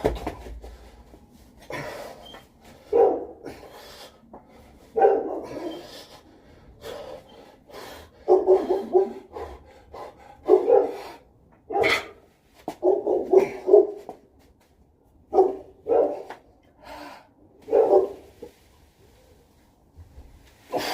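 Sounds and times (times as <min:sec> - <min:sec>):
dog barking: 0:02.9 - 0:03.4, 0:05.0 - 0:05.8, 0:08.2 - 0:09.6, 0:10.4 - 0:11.1, 0:11.7 - 0:12.2, 0:12.8 - 0:14.0, 0:15.3 - 0:16.3, 0:17.7 - 0:18.2.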